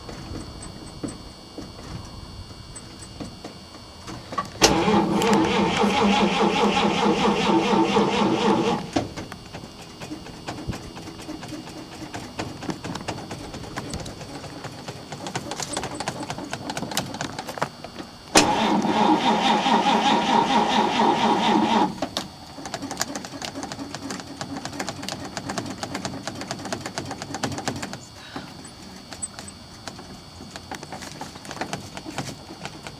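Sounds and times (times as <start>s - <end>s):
starter cranking engine: 4.6s - 9.2s, 18.4s - 28.0s.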